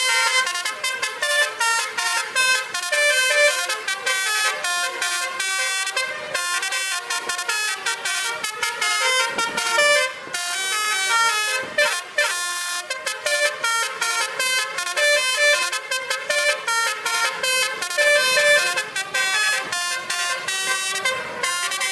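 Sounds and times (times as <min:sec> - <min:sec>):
musical air horn playing tune: 0:00.0 - 0:21.9.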